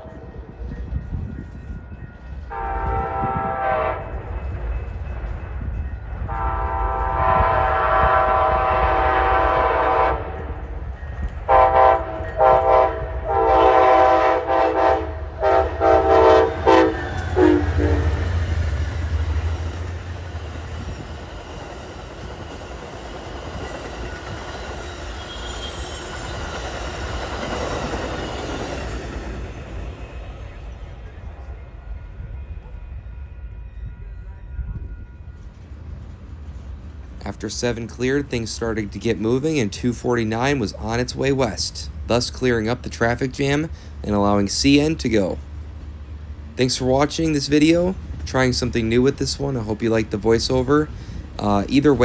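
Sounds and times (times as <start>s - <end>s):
train wheels rumbling on rails: 0.0s - 52.0s
train air horn blasts: 2.5s - 4.2s, 6.3s - 10.7s, 11.5s - 18.5s.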